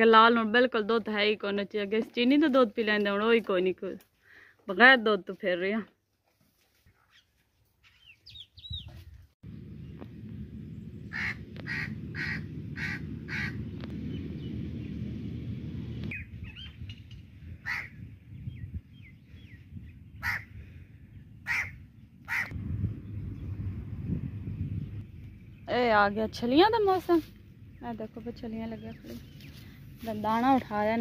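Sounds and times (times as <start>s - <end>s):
small birds chirping: 7.0s - 15.1s, 24.7s - 31.0s
low steady rumble: 9.4s - 31.0s
crow-like caws: 11.1s - 13.6s, 17.6s - 17.9s, 20.2s - 20.5s, 21.4s - 21.7s, 22.3s - 22.5s.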